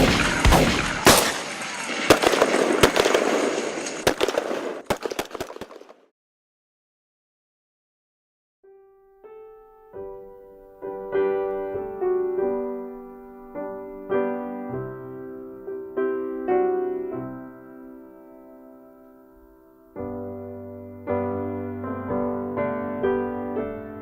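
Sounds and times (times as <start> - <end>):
gentle solo piano: 8.7 - 24.0.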